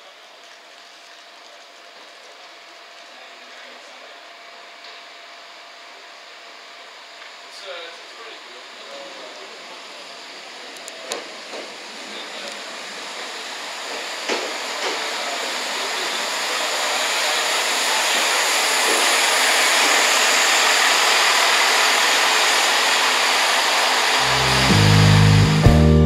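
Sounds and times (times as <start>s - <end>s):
diesel train rushing hiss: 7.5s - 26.0s.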